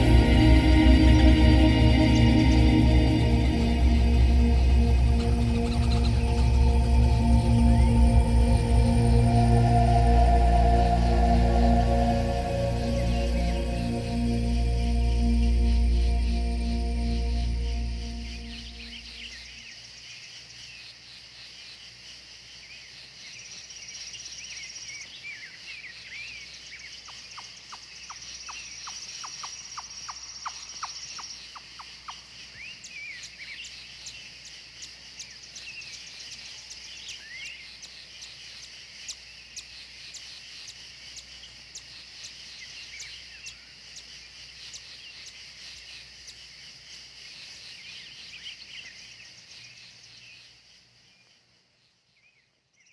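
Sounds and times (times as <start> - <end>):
high trills: 0.0 - 19.5
insects chirring: 0.0 - 25.6, 26.6 - 51.7.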